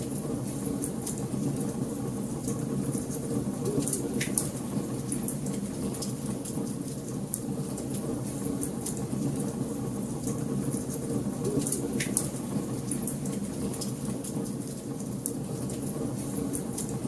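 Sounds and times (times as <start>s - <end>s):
fire burning in fireplace: 0.0s - 17.0s.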